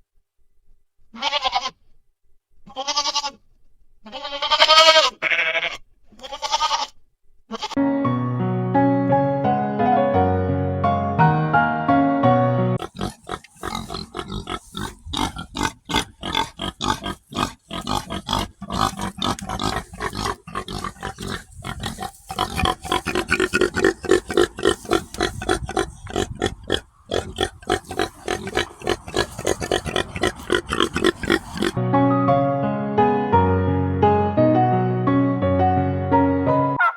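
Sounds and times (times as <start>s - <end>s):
soft piano music: 7.8s - 12.8s, 31.8s - 36.8s
pigs grunting: 12.8s - 31.8s.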